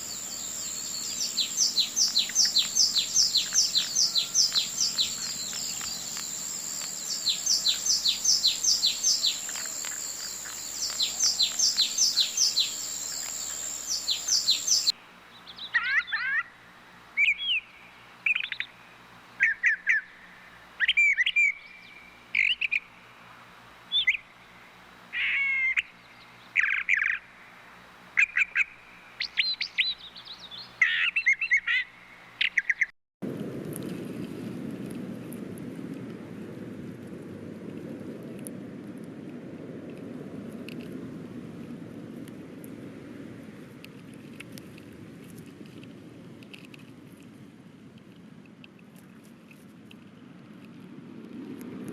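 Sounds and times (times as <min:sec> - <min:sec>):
steady hiss: 0:00.0 - 0:15.7
birds chirping: 0:00.0 - 0:16.5
birds whistling and trilling: 0:00.0 - 0:16.5, 0:17.2 - 0:18.8, 0:19.4 - 0:22.9, 0:23.9 - 0:24.3, 0:28.2 - 0:32.9.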